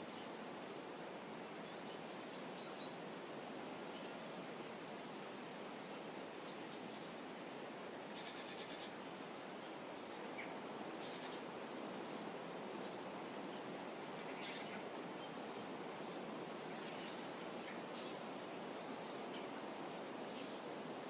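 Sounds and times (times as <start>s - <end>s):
outdoor ambient hiss: 0.0s - 21.0s.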